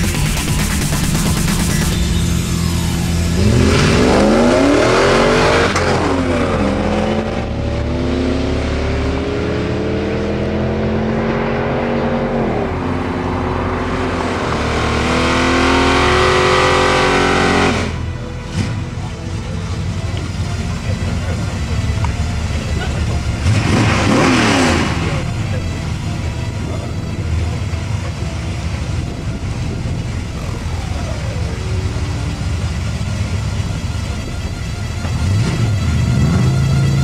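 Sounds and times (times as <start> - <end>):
car engine revving: 0.0 - 37.0
cars accelerating hard: 0.0 - 37.0
tyres spinning in burnout: 0.0 - 37.0.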